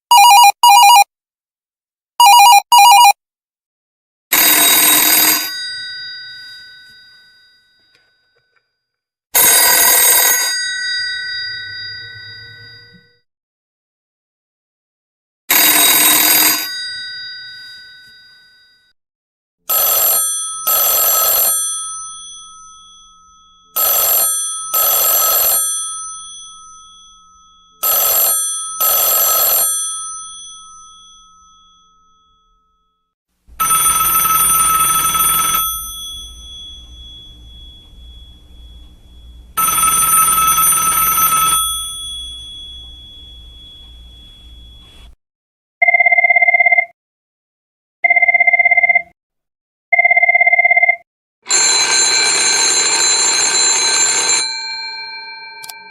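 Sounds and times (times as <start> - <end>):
telephone bell long rings: 0.1 - 1.1, 2.2 - 3.2, 4.3 - 8.6, 9.4 - 13.1, 15.5 - 18.9, 19.7 - 33.0, 33.6 - 45.2, 49.9 - 55.9
old telephone bells double-ringing: 4.4 - 8.2, 9.4 - 13.0, 15.5 - 18.6, 19.7 - 32.3, 33.6 - 45.2, 51.5 - 55.9.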